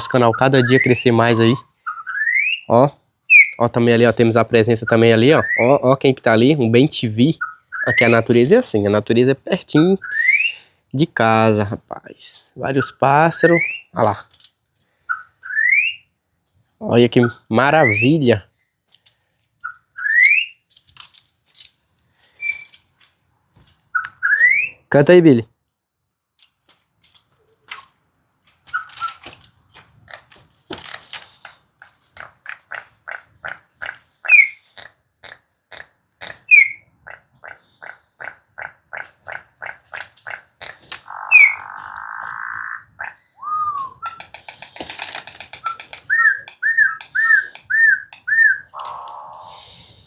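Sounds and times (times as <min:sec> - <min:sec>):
bird singing clicking notes and whistles: 0:00.0 - 0:02.7, 0:03.3 - 0:04.2, 0:04.8 - 0:05.8, 0:07.4 - 0:08.4, 0:10.0 - 0:10.6, 0:12.8 - 0:14.0, 0:15.1 - 0:16.1, 0:17.1 - 0:18.3, 0:19.6 - 0:20.7, 0:22.4 - 0:22.8, 0:23.9 - 0:24.9, 0:28.6 - 0:29.3, 0:33.4 - 0:34.7, 0:36.2 - 0:38.0, 0:39.6 - 0:49.6
harsh rasping bird note: 0:39.3 - 0:43.1.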